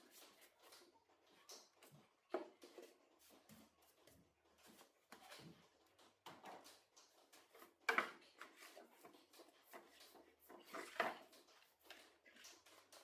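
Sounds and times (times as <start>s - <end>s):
objects knocking and clicking: 5.2s - 13.0s.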